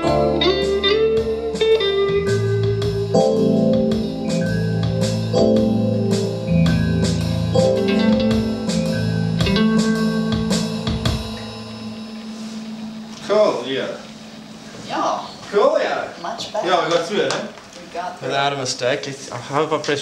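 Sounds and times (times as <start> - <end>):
drum kit: 0.0 - 15.2
guitar chord ringing: 0.0 - 16.2
jazz-blues band playing: 0.0 - 16.2.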